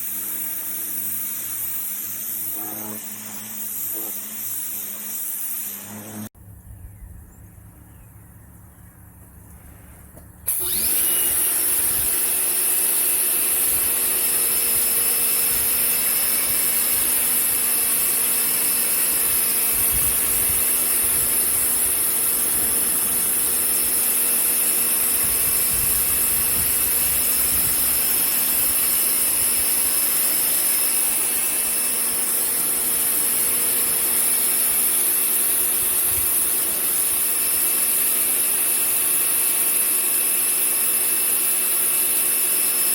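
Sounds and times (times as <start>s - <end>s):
pressure washer water jet hissing: 0.0s - 6.3s, 10.5s - 42.9s
machine humming: 9.3s - 38.5s.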